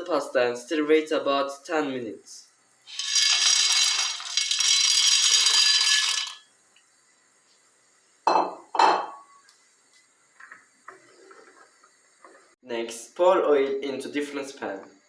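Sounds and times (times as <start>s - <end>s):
dry pasta rustling hiss: 2.7s - 8.2s
sharp clanks on pot: 8.3s - 9.4s.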